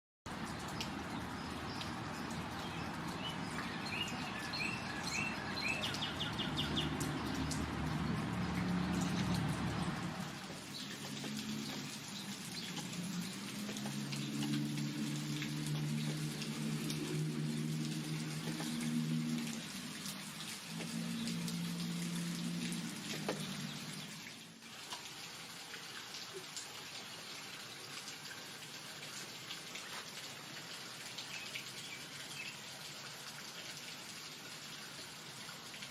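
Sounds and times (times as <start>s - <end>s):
distinct water drops: 0.3s - 24.3s
rain pattering: 0.3s - 35.9s
songbird singing: 0.5s - 19.5s.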